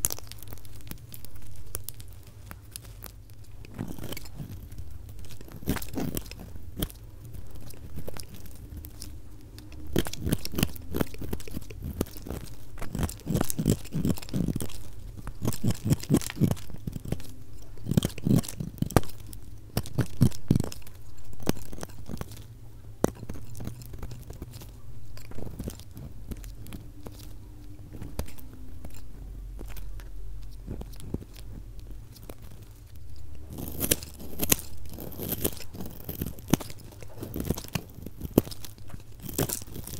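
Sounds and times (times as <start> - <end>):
knife crunching through soap: 0.0 - 39.9.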